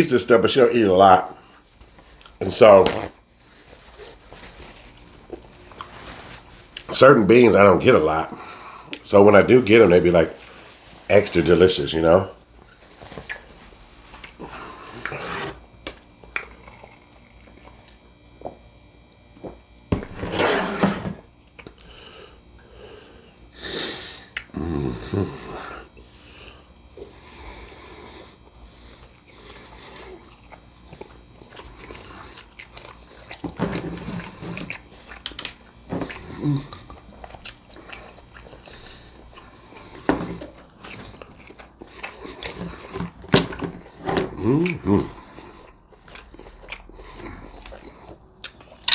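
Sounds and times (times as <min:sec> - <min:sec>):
person chewing: 0:01.4 - 0:07.0, 0:12.4 - 0:18.6, 0:21.5 - 0:48.9
wet mouth clicks: 0:15.8 - 0:16.8, 0:24.3 - 0:24.6, 0:45.6 - 0:48.9.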